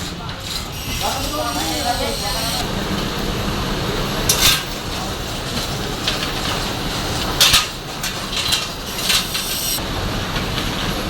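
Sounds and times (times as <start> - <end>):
metallic clanks and rattles: 4.3 - 9.8.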